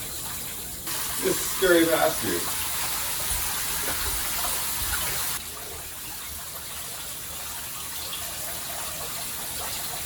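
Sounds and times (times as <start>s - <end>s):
shower spray running: 0.0s - 10.0s.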